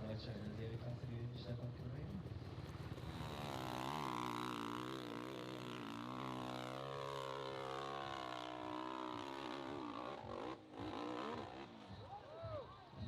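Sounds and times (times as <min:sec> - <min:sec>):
motorcycle engine revving: 0:02.6 - 0:12.0.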